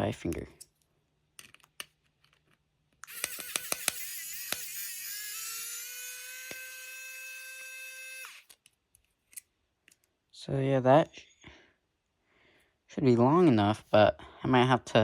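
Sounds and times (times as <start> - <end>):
electric screwdriver whirring: 3.0 - 8.6.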